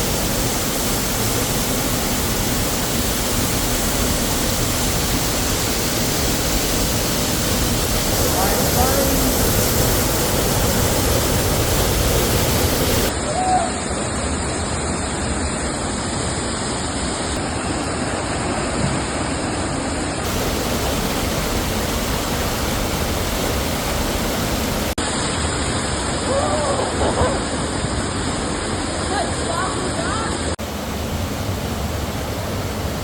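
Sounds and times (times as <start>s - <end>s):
waterfall rushing: 0.0s - 14.2s, 20.2s - 27.0s, 27.7s - 33.0s.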